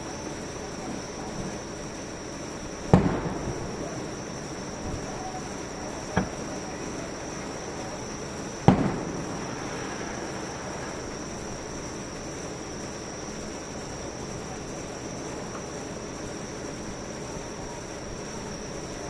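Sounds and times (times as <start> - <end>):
steady background noise: 0.0 - 19.0
firework bang: 2.8 - 12.4.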